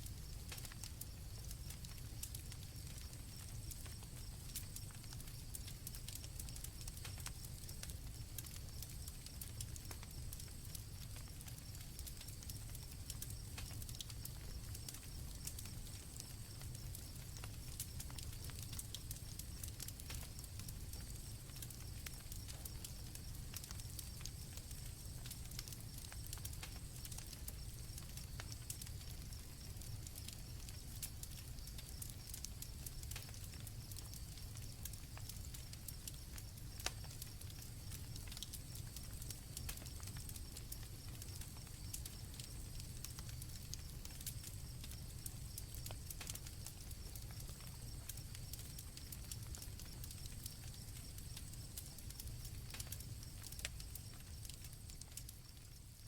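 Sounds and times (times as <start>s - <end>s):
campfire crackling and popping: 0.0s - 56.0s
crickets chirping: 11.2s - 56.0s.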